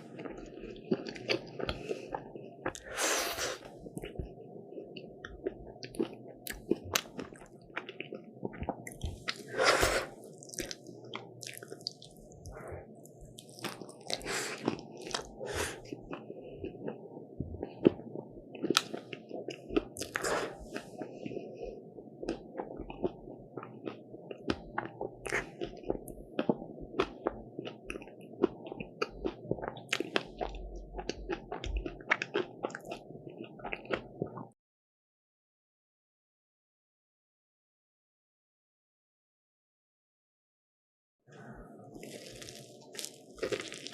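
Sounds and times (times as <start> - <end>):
crunching and chewing: 0.0 - 2.9, 4.9 - 17.0, 17.6 - 21.6, 22.2 - 34.5, 41.9 - 43.9.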